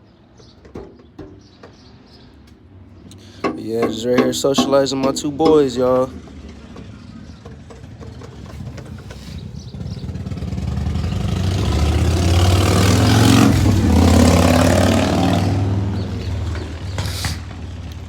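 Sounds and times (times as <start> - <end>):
vehicle driving past: 8.4 - 18.0.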